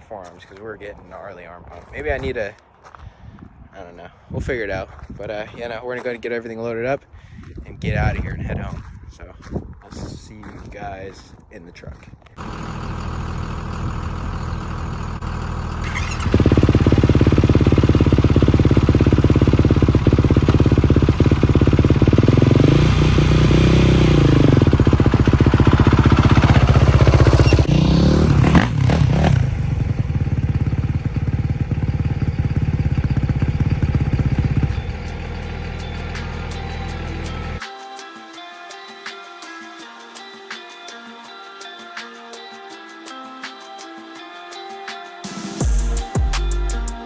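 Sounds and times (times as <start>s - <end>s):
engine revving: 12.4s - 37.6s.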